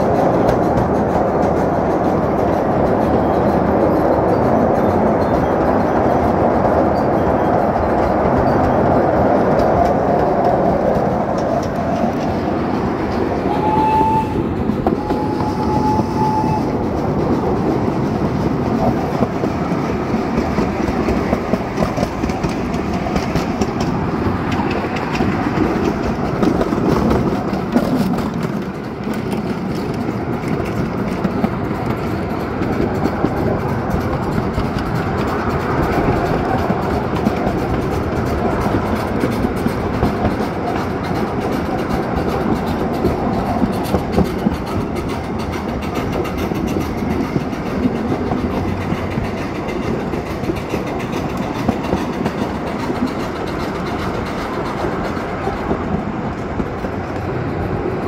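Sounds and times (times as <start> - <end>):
train wheels rumbling on track: 0.0 - 58.0
train whistle toots: 13.4 - 16.9.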